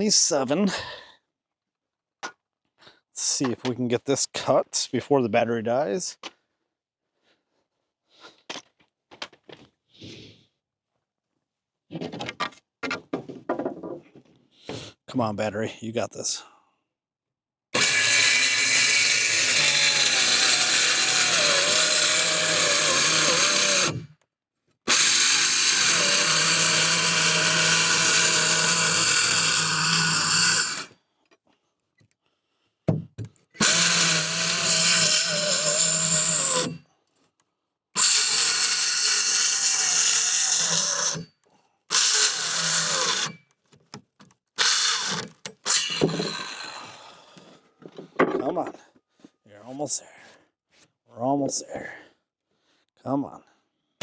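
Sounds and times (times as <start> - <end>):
power saw motor whining: 17.8 - 24.2, 24.9 - 31.0, 33.6 - 36.8, 38.0 - 41.3, 41.9 - 43.5, 44.6 - 47.0.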